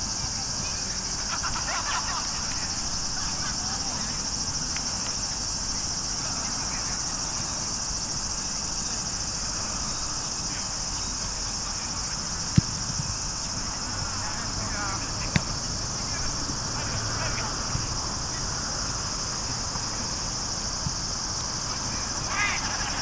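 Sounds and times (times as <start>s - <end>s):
faint distant voices: 0.0s - 23.0s
insects chorus: 0.0s - 23.0s
sharp thumps: 12.5s - 13.2s, 15.3s - 15.7s.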